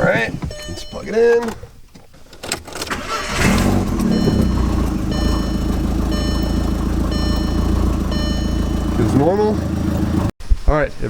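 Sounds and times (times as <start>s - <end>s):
dashboard warning chime: 0.5s - 1.4s, 3.2s - 9.6s
car engine starting and idling: 2.5s - 10.3s.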